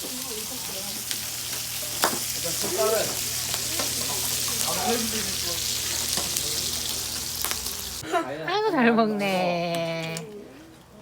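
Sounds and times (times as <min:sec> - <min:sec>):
meat sizzling on a grill: 0:00.0 - 0:08.0.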